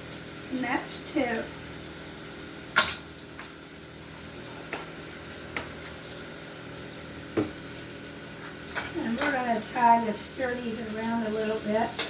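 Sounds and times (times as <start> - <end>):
onions sizzling in frying pan: 0.0 - 12.0.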